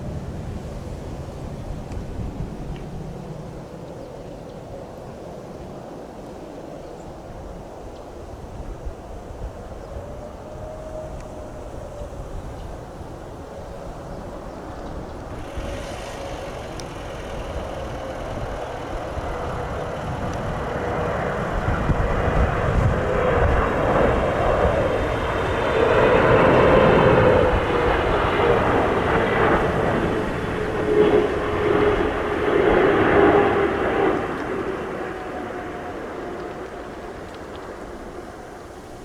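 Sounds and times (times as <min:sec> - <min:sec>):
jet airliner engine roar: 0:00.0 - 0:39.0
wind rumble on microphone: 0:00.0 - 0:39.0.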